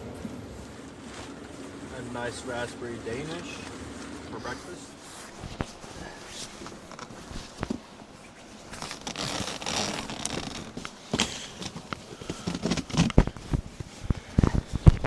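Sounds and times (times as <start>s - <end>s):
rustling: 0.0s - 15.0s
ripping or zipping noise: 5.0s - 15.0s.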